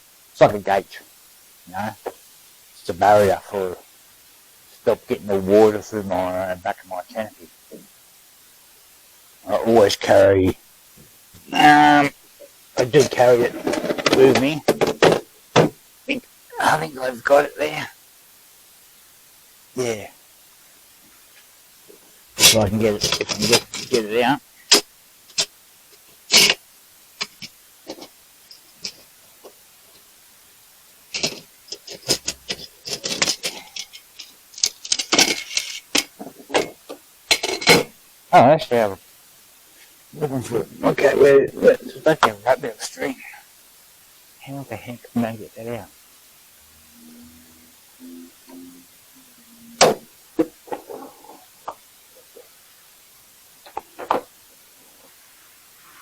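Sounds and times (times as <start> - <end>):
clinks and clatters of small items: 13.1 - 15.7, 22.4 - 24.0, 31.1 - 38.0.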